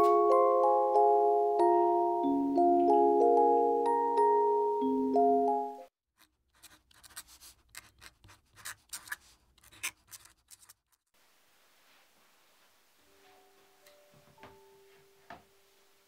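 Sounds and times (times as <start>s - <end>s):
background music: 0.0s - 5.9s, 13.0s - 16.0s
faint room hiss: 11.1s - 16.0s.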